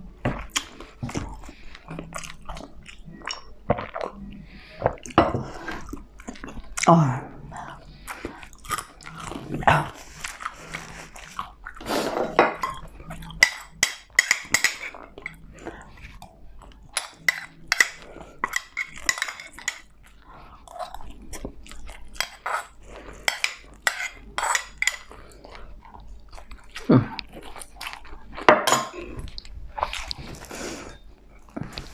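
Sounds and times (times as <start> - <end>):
chewing crispy food: 0.1 - 12.0, 14.8 - 30.6.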